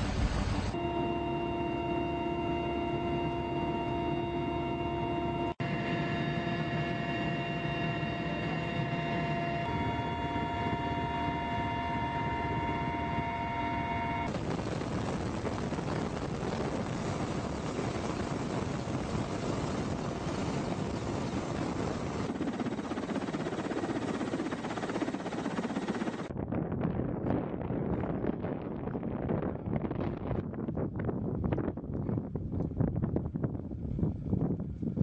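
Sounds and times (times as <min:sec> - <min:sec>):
machine rumble with whine: 0:00.0 - 0:01.9.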